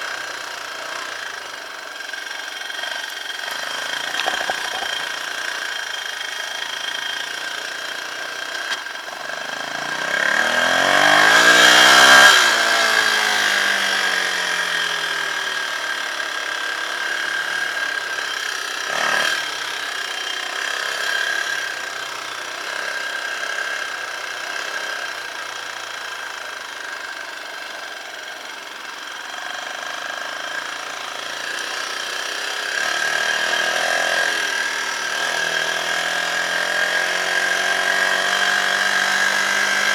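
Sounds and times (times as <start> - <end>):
dirt bike engines running: 0.0 - 39.9
dirt bike passing by: 3.4 - 5.8, 9.2 - 15.7, 32.3 - 39.9.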